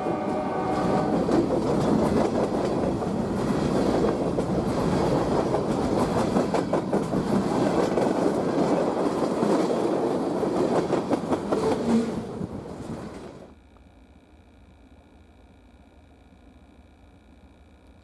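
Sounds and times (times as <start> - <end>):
train wheels clacking over rails: 0.0 - 13.5.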